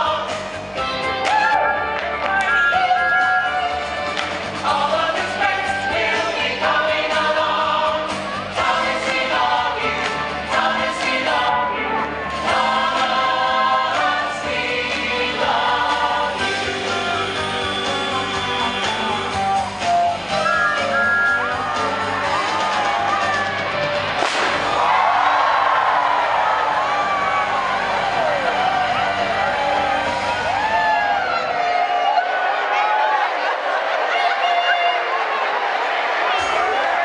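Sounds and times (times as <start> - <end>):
backing music: 0.0 - 31.6
voices singing together: 3.1 - 23.3.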